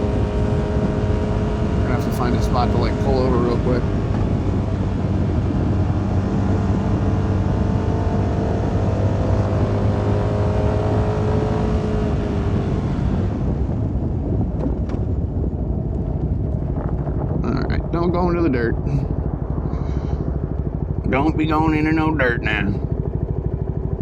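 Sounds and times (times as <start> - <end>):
motorcycle engine running: 0.0 - 24.0
wind rushing: 12.0 - 23.6.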